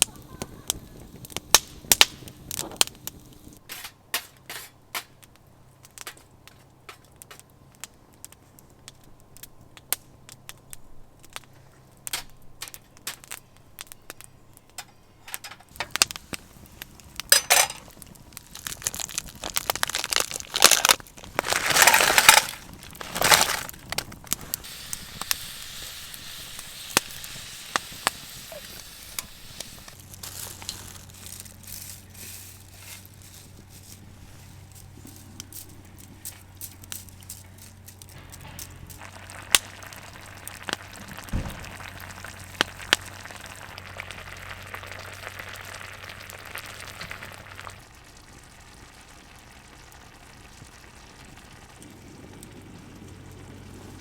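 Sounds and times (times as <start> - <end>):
campfire crackling and popping: 0.0 - 3.6, 4.9 - 54.0
crunching crumpling bursts: 15.7 - 54.0.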